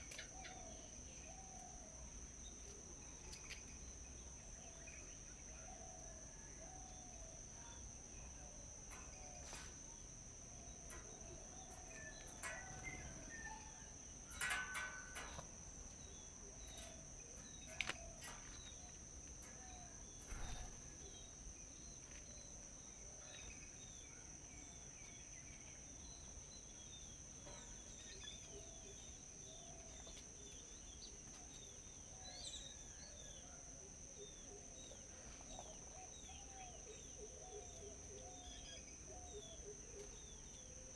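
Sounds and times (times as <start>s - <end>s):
small bird chirps: 6.4s - 22.5s.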